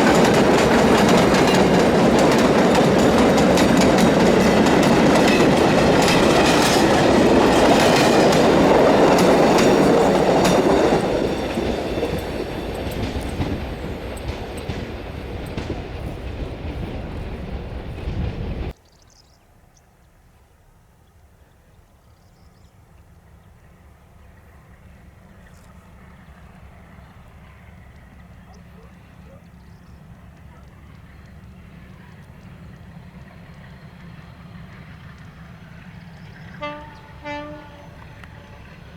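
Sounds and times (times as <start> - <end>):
train wheels clacking over rail joints: 0.0 - 18.8.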